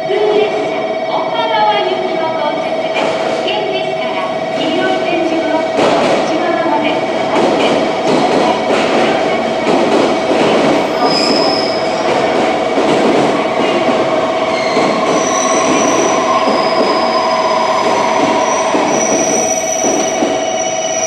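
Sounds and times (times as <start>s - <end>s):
train flanges squealing: 10.4s - 12.5s, 13.4s - 21.0s.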